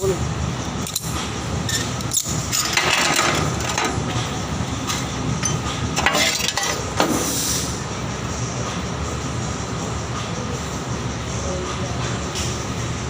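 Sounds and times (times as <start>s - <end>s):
steady low hum: 0.0s - 13.0s
metal tools clinking: 0.9s - 4.0s, 5.4s - 6.8s.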